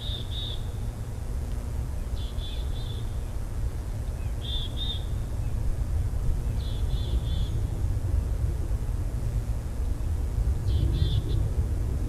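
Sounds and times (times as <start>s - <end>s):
small bird calling: 0.0s - 0.8s, 2.1s - 3.4s, 4.2s - 5.6s
steady low rumble: 5.1s - 12.0s.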